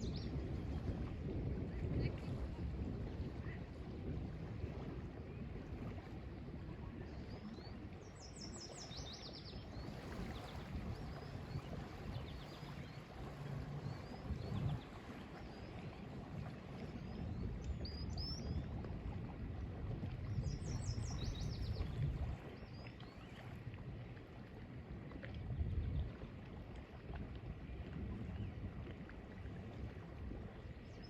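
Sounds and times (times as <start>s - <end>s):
lake water lapping at shore: 0.0s - 31.0s.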